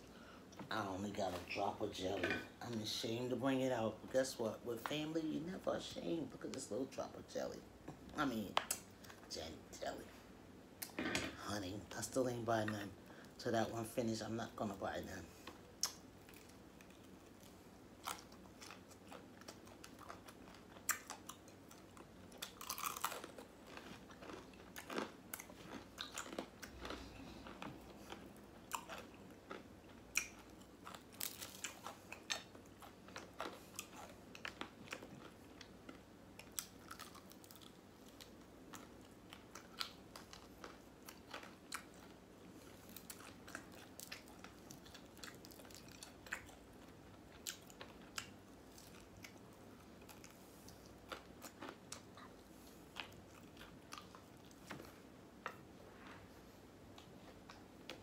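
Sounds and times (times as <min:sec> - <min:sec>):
crisp crunching of fried chicken: 0:15.8 - 0:46.7
wet chewing: 0:15.8 - 0:55.6.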